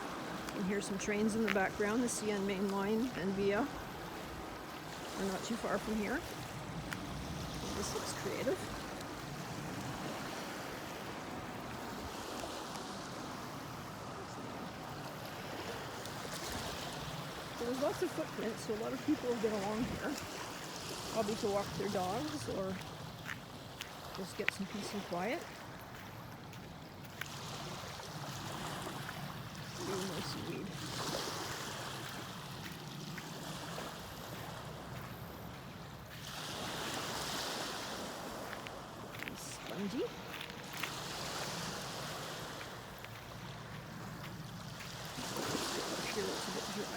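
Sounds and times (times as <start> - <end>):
small waves washing on beach: 0.0 - 46.9.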